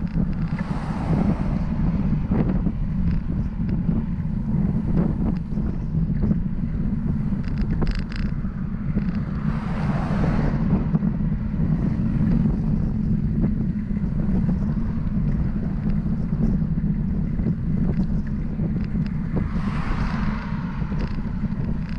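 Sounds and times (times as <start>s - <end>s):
wind buffeting microphone: 0.0s - 21.9s
vehicle passing with tyre hiss: 9.4s - 10.8s, 19.3s - 21.9s.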